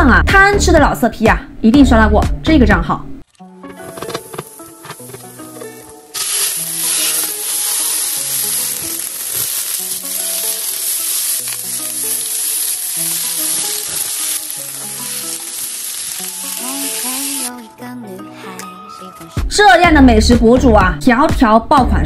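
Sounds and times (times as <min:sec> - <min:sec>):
background music: 0:00.0 - 0:22.0
food sizzling in hot oil: 0:03.8 - 0:17.5.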